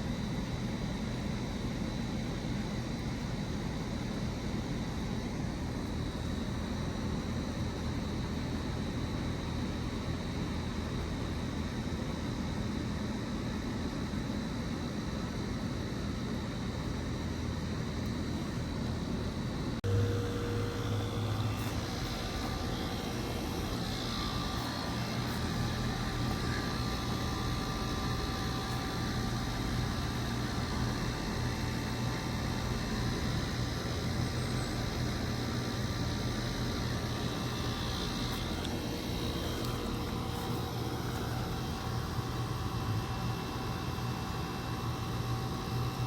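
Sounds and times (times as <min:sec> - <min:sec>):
heat pump rushing noise: 0:19.6 - 0:46.0
low hum: 0:19.8 - 0:33.3.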